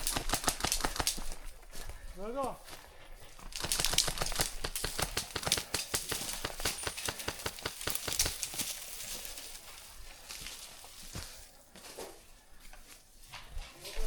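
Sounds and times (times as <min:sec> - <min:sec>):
footsteps crunching through dry brush: 0:00.0 - 0:14.0.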